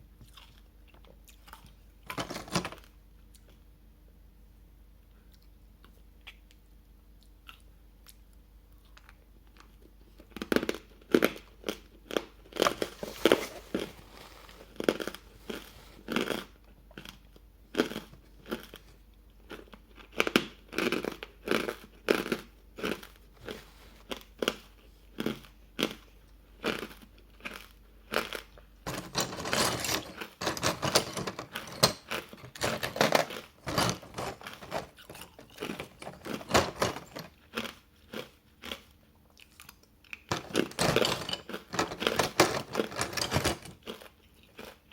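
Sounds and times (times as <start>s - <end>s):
ice crunching being chewed: 37.3s - 40.3s.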